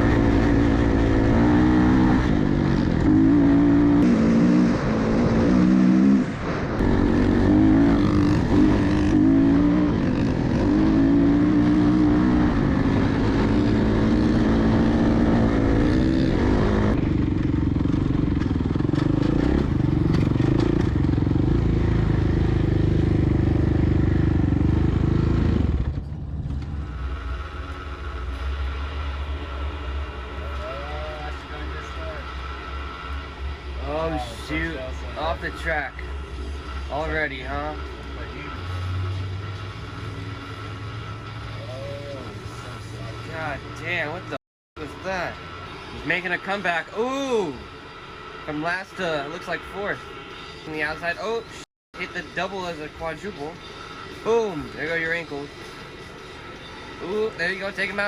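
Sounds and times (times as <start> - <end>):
off-road vehicle engine revving: 0.0 - 55.8.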